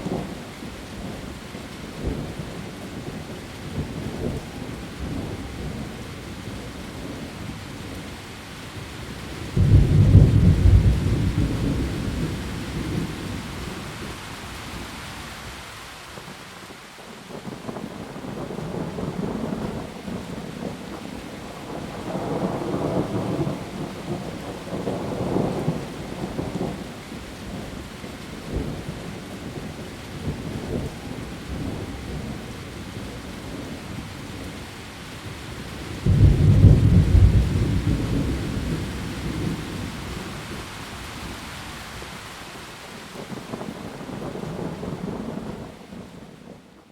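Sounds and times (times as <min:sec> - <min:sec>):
steady rain: 0:00.0 - 0:46.9
rolling thunder: 0:09.4 - 0:13.7, 0:36.0 - 0:41.4
loud thunder clap: 0:36.0 - 0:39.8.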